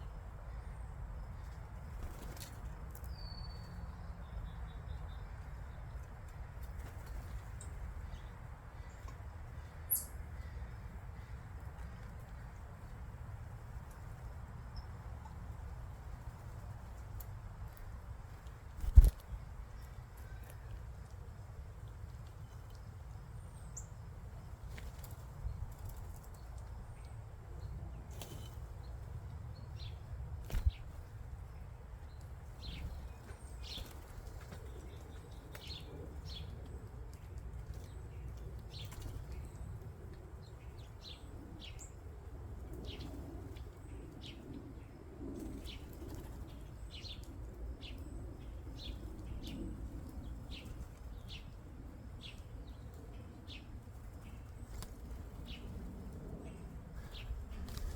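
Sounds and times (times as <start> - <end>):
small birds chirping: 0.0 - 57.9
wing flutters: 18.3 - 19.4, 30.4 - 31.2.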